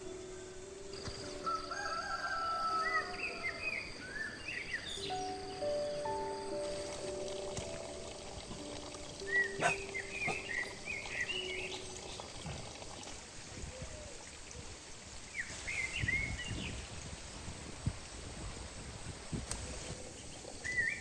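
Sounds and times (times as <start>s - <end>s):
small birds chirping: 0.0s - 13.0s
steady outdoor hiss: 0.0s - 21.0s.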